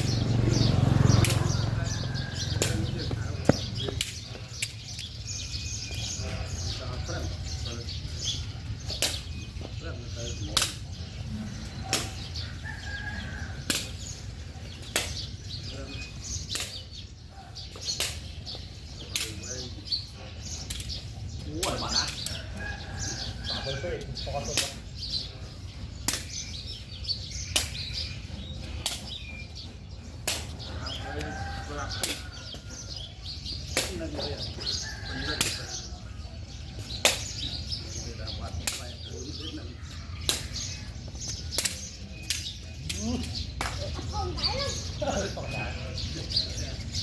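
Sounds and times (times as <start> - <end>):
birds chirping: 0.0 - 47.0.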